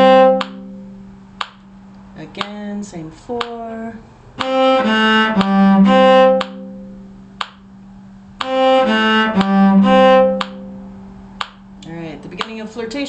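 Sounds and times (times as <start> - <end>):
bowed string instrument phrase: 0.0 - 1.2, 4.4 - 7.3, 8.4 - 11.3.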